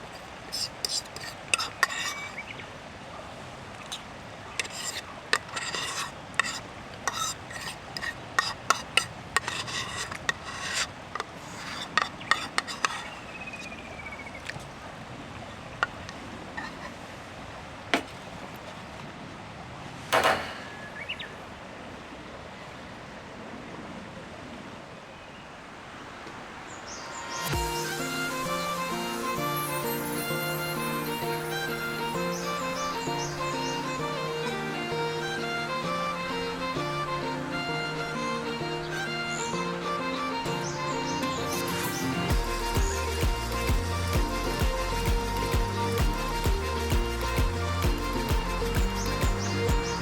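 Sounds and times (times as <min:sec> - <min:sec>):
metal scrape: 0:00.0 - 0:02.4, 0:04.6 - 0:13.2, 0:16.6 - 0:17.0.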